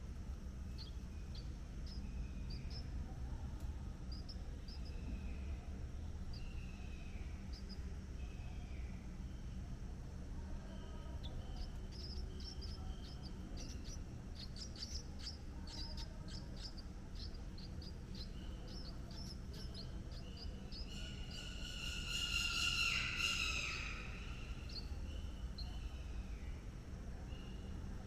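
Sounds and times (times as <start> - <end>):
low background rumble: 0.0 - 28.0
birds chirping: 0.2 - 28.0
loud bird call: 18.6 - 26.0.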